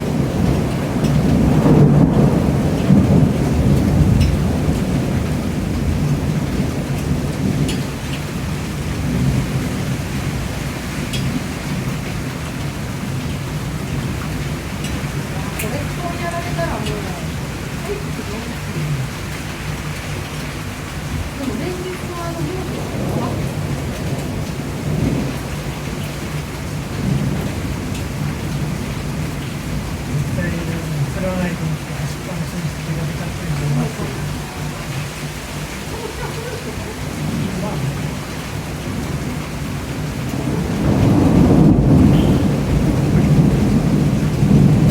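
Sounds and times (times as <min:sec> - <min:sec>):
rain falling: 0:00.0 - 0:44.9
faint drip ticks: 0:00.7 - 0:01.4, 0:03.7 - 0:04.9, 0:06.9 - 0:08.3, 0:11.1 - 0:13.4, 0:14.1 - 0:23.3, 0:42.1 - 0:42.4.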